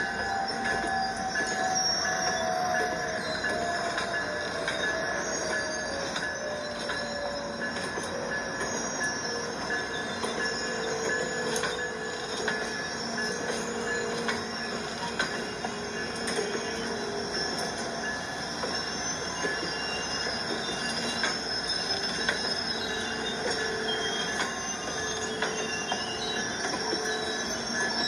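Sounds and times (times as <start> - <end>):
train wheels squealing: 0.0 - 28.0.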